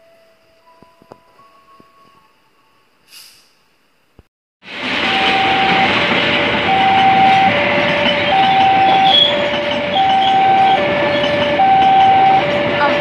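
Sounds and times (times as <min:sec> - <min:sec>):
train wheels rushing on rails: 0:04.6 - 0:13.0
two-tone level crossing alarm: 0:05.0 - 0:13.0.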